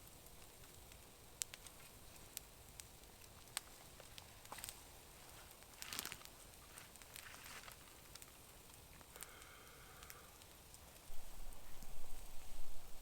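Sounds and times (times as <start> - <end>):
faint crackles: 0.0 - 13.0
soft rustles: 3.7 - 7.9.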